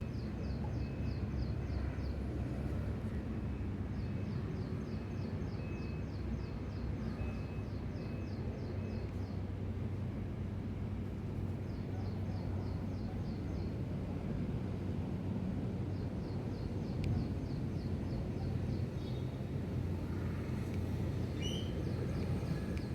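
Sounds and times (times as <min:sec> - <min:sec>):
steady low hum: 0:09.4 - 0:22.9.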